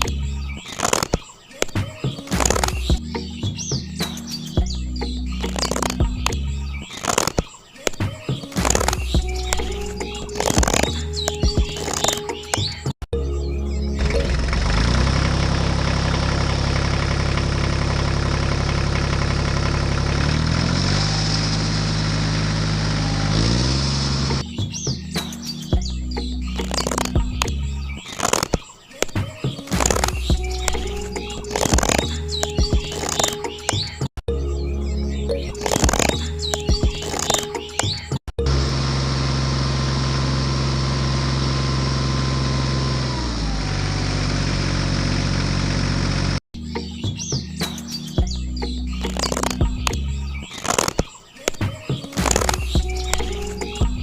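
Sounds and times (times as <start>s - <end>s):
motor humming: 8.6s - 12.7s, 14.0s - 24.4s, 29.7s - 33.8s, 35.4s - 46.4s, 52.2s - 54.0s
engine idling: 14.0s - 24.4s, 38.4s - 46.4s.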